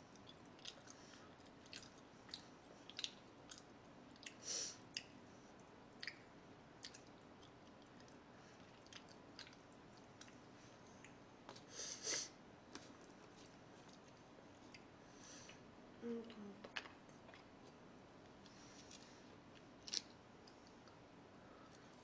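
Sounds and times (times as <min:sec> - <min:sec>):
chewing food mouth clicks: 0:00.2 - 0:05.1, 0:06.0 - 0:10.4.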